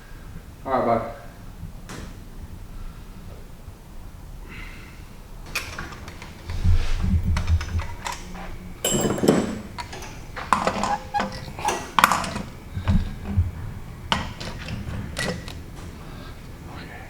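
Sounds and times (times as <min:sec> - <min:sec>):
metal tools clanking: 0:05.5 - 0:16.3.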